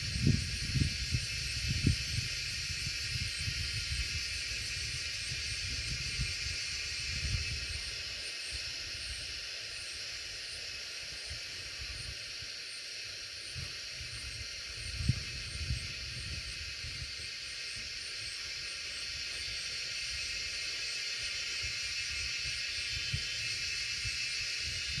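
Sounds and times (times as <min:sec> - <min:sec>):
wind blowing: 0:00.0 - 0:04.9
wind buffeting microphone: 0:00.0 - 0:07.9, 0:13.6 - 0:17.2, 0:22.2 - 0:25.0.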